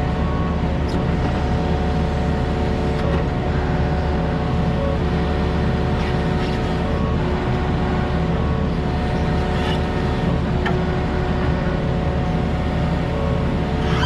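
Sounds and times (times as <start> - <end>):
diesel engine running: 0.0 - 14.0
faint squeak: 13.8 - 14.0.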